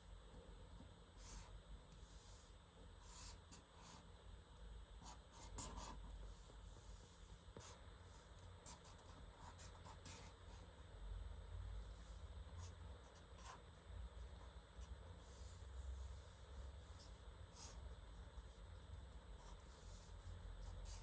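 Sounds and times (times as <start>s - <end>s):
faint low hum: 0.0s - 21.0s
pen scratching on paper: 5.0s - 10.7s, 12.1s - 17.8s, 18.4s - 21.0s.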